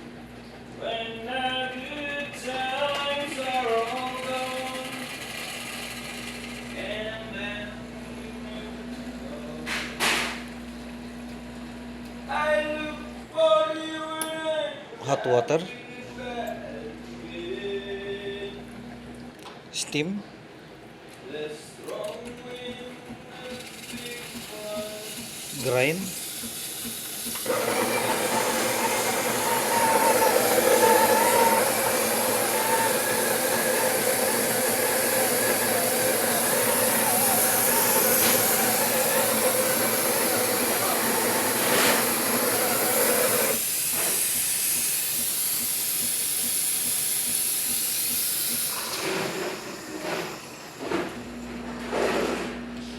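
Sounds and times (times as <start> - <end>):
coffee grinder running: 1.6 - 7.6, 23.3 - 52.7.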